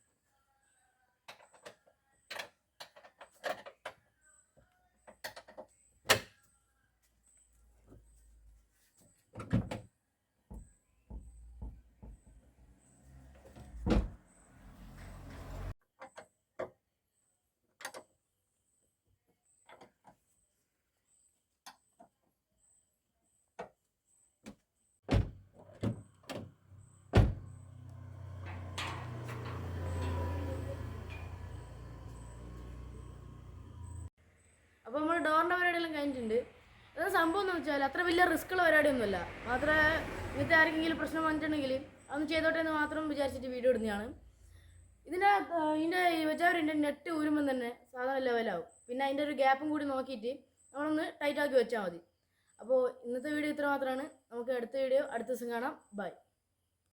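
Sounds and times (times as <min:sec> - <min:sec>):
car door shutting: 0:13.6 - 0:14.2, 0:25.1 - 0:34.1
door latch and handle clicks: 0:28.4 - 0:31.6.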